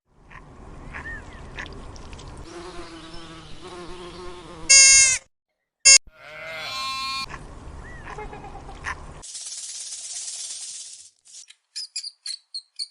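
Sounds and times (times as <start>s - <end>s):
livestock bleating: 5.9s - 7.3s.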